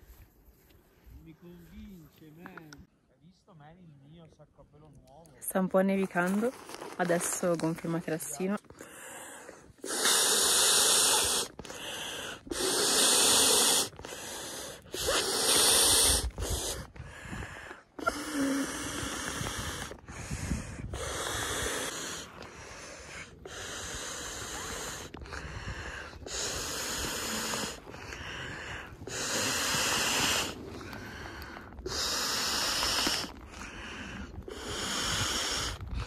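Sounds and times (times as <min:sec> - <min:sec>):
air rushing into sleeping pad: 0:09.8 - 0:17.3, 0:18.0 - 0:36.0.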